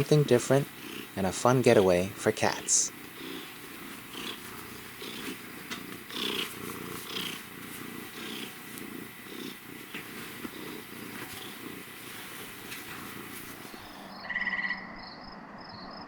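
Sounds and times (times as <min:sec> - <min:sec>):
cat purring: 0:00.0 - 0:14.3.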